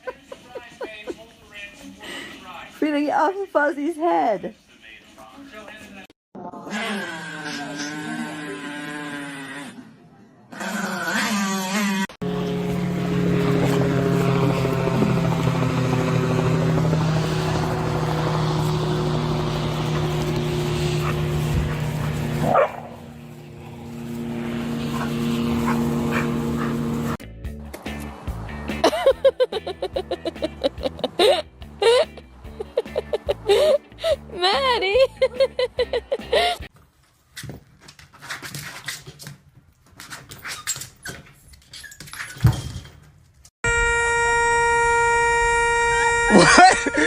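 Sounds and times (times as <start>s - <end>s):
motor hum: 12.2s - 27.2s
scuffling: 19.5s - 27.2s
dog barking: 22.4s - 23.0s, 24.9s - 26.8s
loud horn-like tone: 43.6s - 47.0s.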